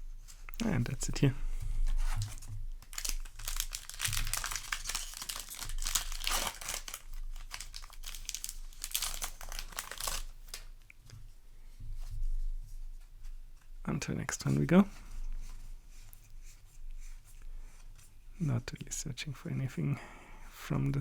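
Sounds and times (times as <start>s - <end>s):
foil wrapper crinkling and tearing: 1.9s - 10.7s.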